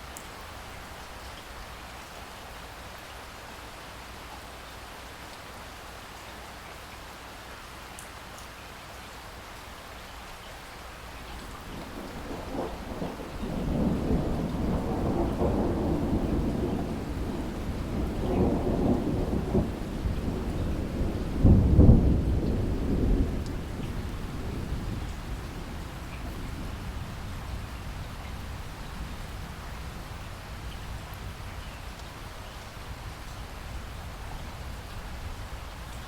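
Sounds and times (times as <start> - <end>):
steady rain: 0.0 - 36.0
rolling thunder: 11.6 - 30.0.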